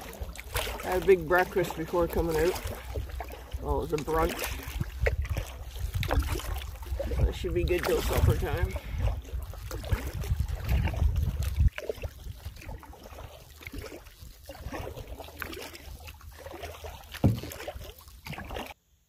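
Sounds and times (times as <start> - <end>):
water dripping against hull: 0.0 - 18.6
paddle strokes in water: 0.0 - 18.8
wind rumble on microphone: 1.9 - 16.3
small knocks: 17.2 - 17.5.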